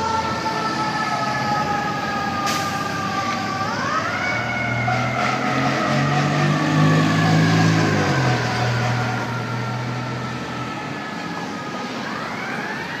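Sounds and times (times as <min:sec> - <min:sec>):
fire truck siren: 0:00.0 - 0:13.0
heavy truck engine: 0:00.0 - 0:13.0.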